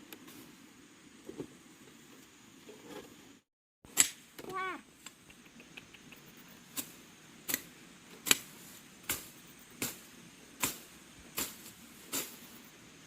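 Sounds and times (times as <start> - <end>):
faint ticks: 5.0 - 6.5.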